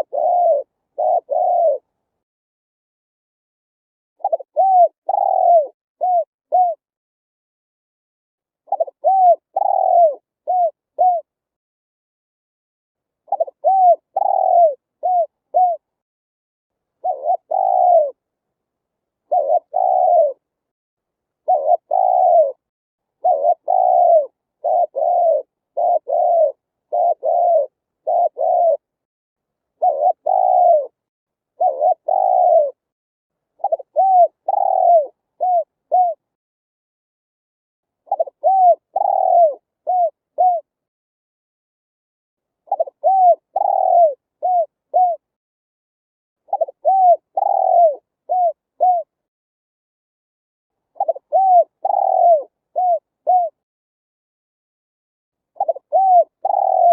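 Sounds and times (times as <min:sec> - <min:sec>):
dove cooing: 0:00.0 - 0:01.9, 0:04.2 - 0:06.8, 0:08.7 - 0:11.3, 0:13.3 - 0:15.9, 0:17.0 - 0:18.2, 0:19.3 - 0:20.4, 0:21.4 - 0:22.6, 0:23.2 - 0:28.9, 0:29.8 - 0:31.0, 0:31.6 - 0:32.8, 0:33.6 - 0:36.2, 0:38.1 - 0:40.7, 0:42.7 - 0:45.3, 0:46.5 - 0:49.1, 0:51.0 - 0:53.6, 0:55.6 - 0:56.9.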